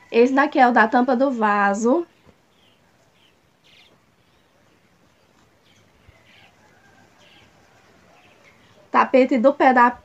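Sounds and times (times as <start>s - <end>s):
faint bird chirps: 2.0s - 8.9s.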